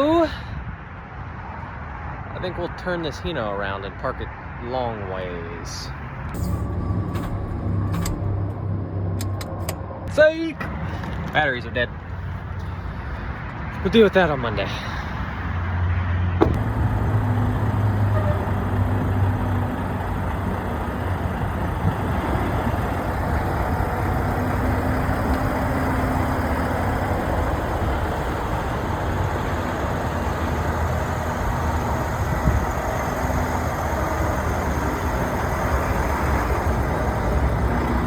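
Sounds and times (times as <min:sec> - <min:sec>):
vehicle engine running: 0:16.4 - 0:38.0.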